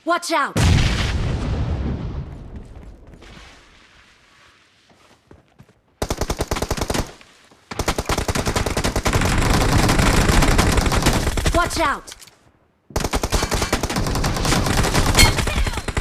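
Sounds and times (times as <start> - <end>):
video game automatic gunfire: 6.0 - 11.6, 13.0 - 16.0.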